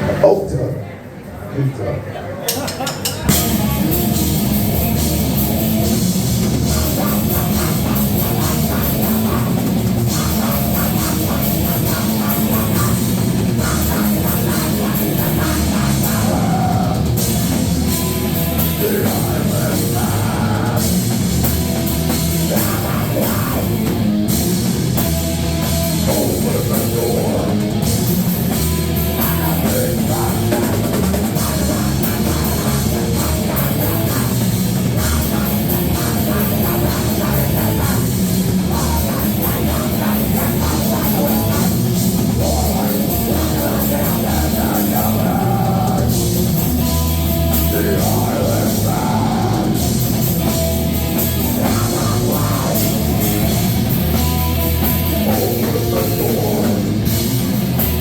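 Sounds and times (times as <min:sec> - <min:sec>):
heavy distorted rock band: 0:02.5 - 0:58.0
drum kit pounding: 0:03.0 - 0:58.0.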